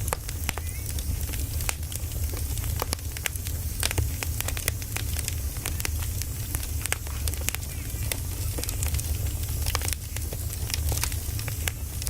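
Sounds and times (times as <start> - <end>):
firewood crackling and popping: 0.0 - 12.0.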